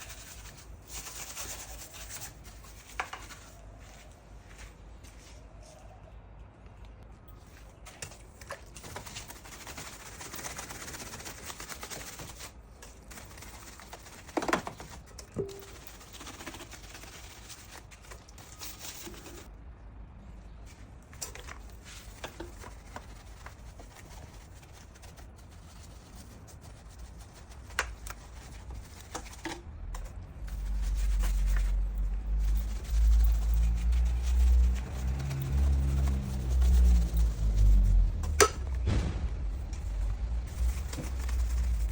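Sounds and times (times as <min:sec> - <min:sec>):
low rumble: 0:31.3 - 0:41.9.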